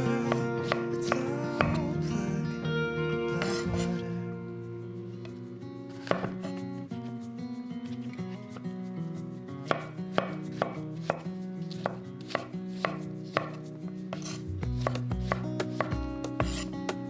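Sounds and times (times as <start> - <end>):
background music: 0.0 - 6.3
knife chopping on cutting board: 6.0 - 6.4, 9.7 - 13.6, 14.2 - 16.7.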